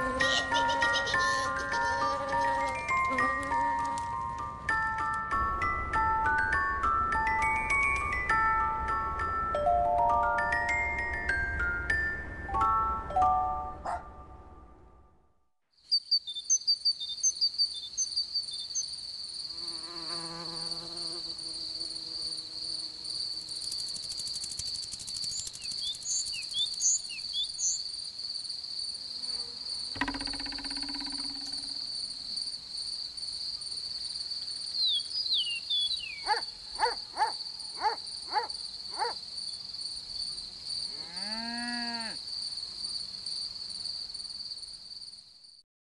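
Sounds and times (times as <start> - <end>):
insect chirring trill: 15.9 - 45.2.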